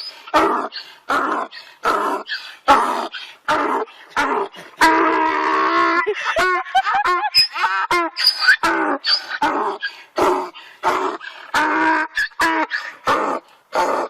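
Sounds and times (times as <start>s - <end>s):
animal harsh calls: 0.0s - 14.0s
long drawn-out animal call: 0.0s - 14.0s.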